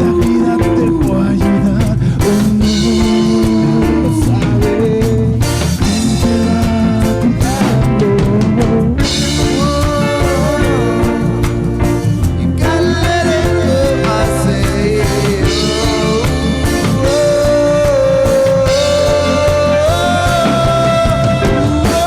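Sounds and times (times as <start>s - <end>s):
lead melody holding long notes: 0.0s - 22.0s
rock band playing live: 0.0s - 22.0s.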